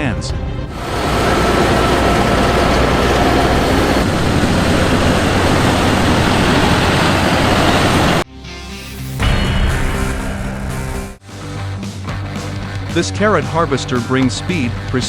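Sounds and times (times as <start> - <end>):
large machine engine rumble: 0.4 - 8.3, 9.2 - 15.0
dense mechanical noise: 0.6 - 8.3.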